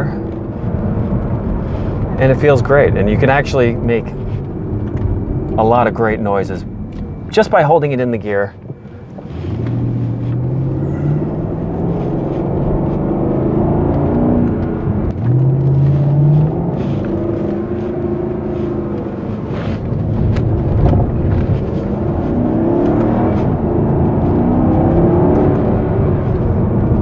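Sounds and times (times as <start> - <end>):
car engine pulling from cabin: 0.0 - 27.0.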